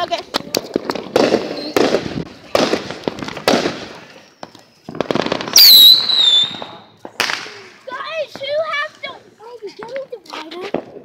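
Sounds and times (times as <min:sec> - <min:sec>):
fireworks crackling: 0:00.0 - 0:11.0
fireworks sharp bangs: 0:00.1 - 0:09.0
whistling rocket shrill squeal: 0:05.5 - 0:06.7.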